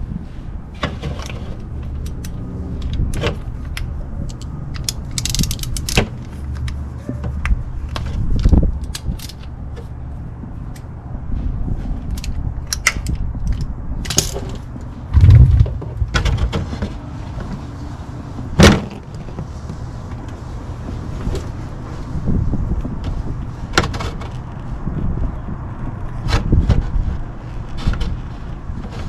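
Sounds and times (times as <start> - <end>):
steady low hum: 0.0 - 18.5
heavy thump: 15.2 - 16.6.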